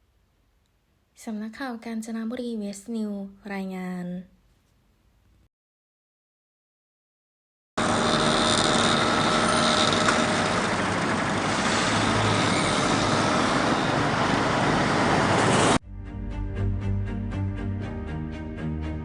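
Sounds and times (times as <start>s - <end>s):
passing vehicles: 10.0s - 15.8s.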